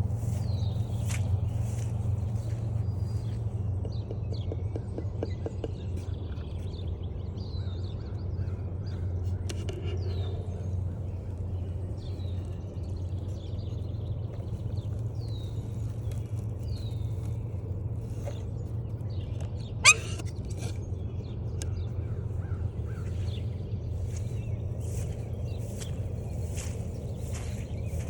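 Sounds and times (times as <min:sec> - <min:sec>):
songbirds calling: 0:00.0 - 0:28.0
steady low rumble: 0:00.0 - 0:28.0
high downward-sliding bird call: 0:19.8 - 0:20.2.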